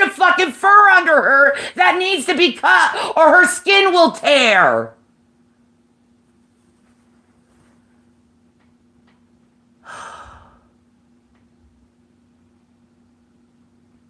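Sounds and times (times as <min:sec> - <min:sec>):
steady low hum: 0:00.0 - 0:14.0
breathy exhale: 0:09.8 - 0:10.8.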